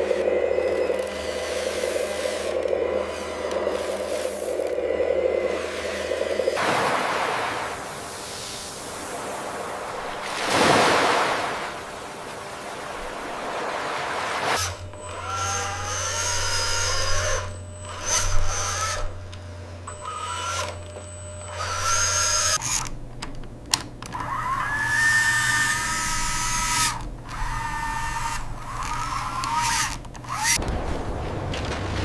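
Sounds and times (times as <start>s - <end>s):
small electric motors whining: 0.0s - 6.7s, 11.8s - 30.6s
low steady hum: 0.0s - 32.0s.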